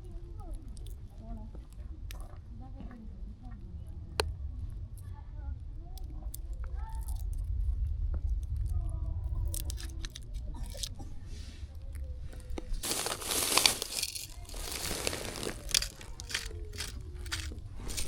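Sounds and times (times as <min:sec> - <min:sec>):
crinkling and rustling handling: 0:08.4 - 0:18.0.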